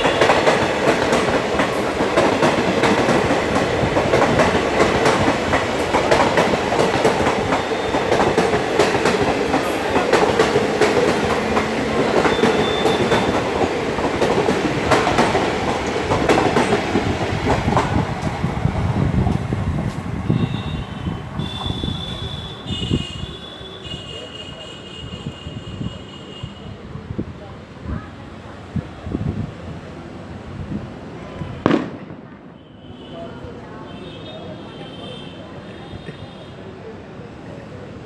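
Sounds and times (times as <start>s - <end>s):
train wheels clattering over rails: 0.0s - 20.7s.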